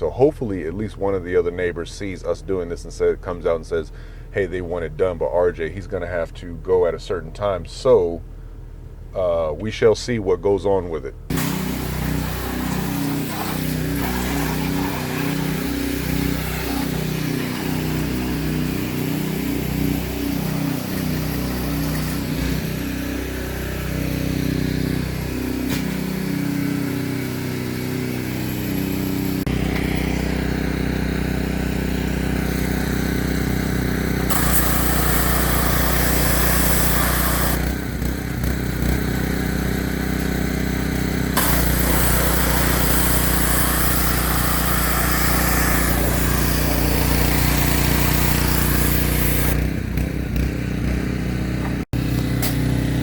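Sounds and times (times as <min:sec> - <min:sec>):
high-pressure water spray hiss: 0:11.3 - 0:22.5, 0:34.3 - 0:37.6, 0:41.4 - 0:49.6
pressure washer engine running: 0:11.3 - 0:53.0.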